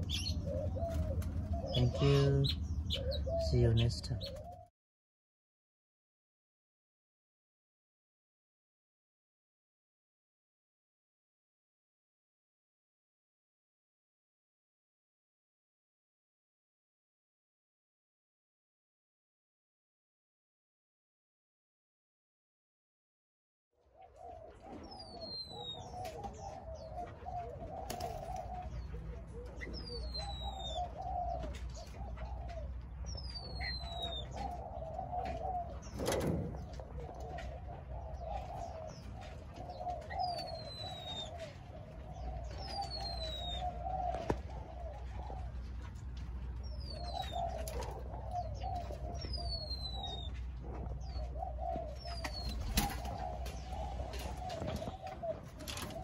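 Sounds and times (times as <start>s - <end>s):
doves cooing: 0.0s - 4.7s, 24.0s - 56.0s.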